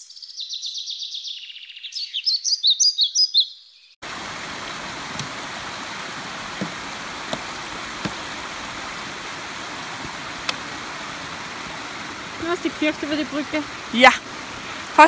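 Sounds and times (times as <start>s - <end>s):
stream rushing: 4.0s - 15.0s
poles and boots knocking on wood: 6.5s - 8.4s.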